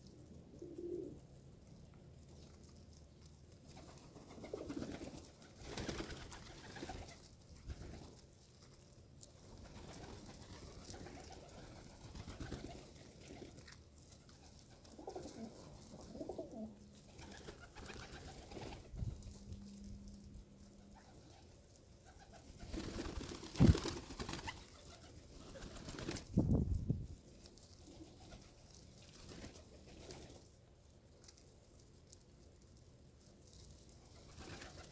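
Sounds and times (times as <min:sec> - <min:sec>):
pigeons cooing: 0:00.1 - 0:01.3, 0:14.8 - 0:18.9.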